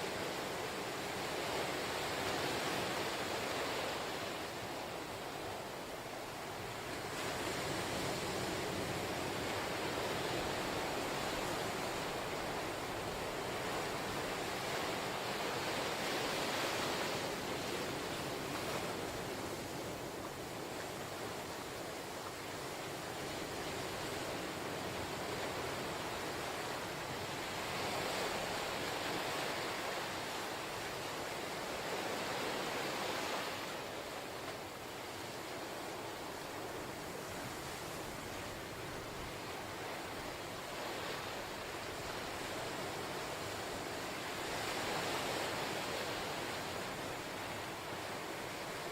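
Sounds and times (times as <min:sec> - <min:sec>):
ocean waves washing on shore: 0:00.0 - 0:48.9
ocean waves breaking: 0:06.4 - 0:21.4.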